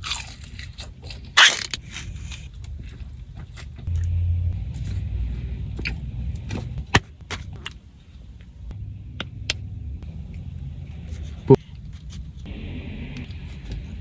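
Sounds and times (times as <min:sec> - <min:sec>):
car engine idling: 0:03.8 - 0:07.0, 0:08.5 - 0:14.0.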